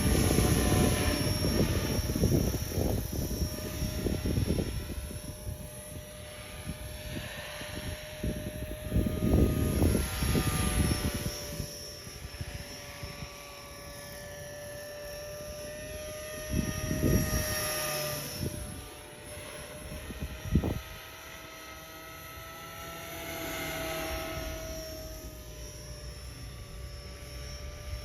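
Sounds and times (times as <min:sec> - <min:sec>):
wind blasts on microphone: 0:00.0 - 0:11.7, 0:15.5 - 0:21.0
rc helicopter rotor whine: 0:00.0 - 0:28.0.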